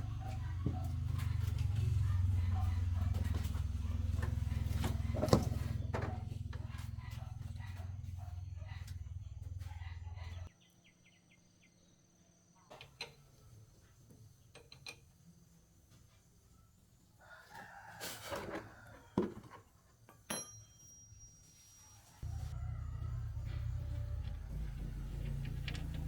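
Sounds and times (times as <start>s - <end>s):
rooster crowing: 0.0s - 10.3s, 17.2s - 19.2s, 22.2s - 26.0s
low steady motor hum: 0.0s - 10.5s, 22.2s - 26.0s.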